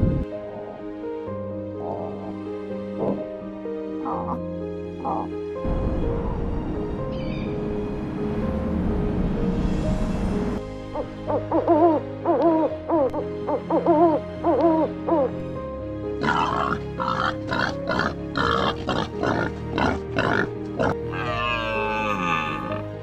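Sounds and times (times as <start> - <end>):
background music: 0.0 - 23.0
rough grunting: 16.2 - 23.0.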